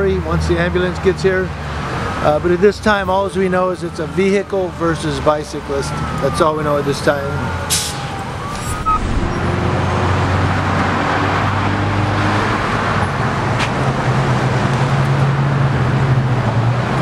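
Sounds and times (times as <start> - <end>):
road traffic noise: 0.0 - 17.0
vehicle engine low hum: 7.3 - 11.6.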